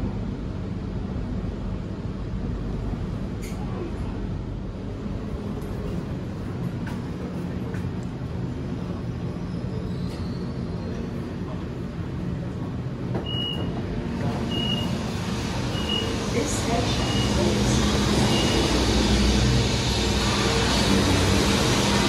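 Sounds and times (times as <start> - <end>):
train carriage rumble: 0.0 - 22.0
short high door beep: 13.2 - 13.7, 14.5 - 14.9.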